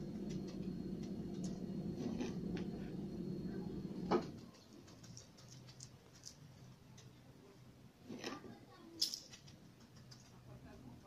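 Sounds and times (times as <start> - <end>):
low steady hum: 0.0 - 4.8.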